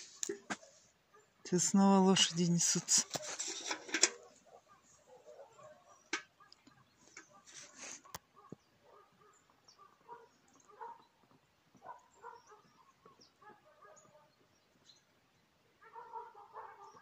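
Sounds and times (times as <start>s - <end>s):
bird calls: 4.1s - 15.1s.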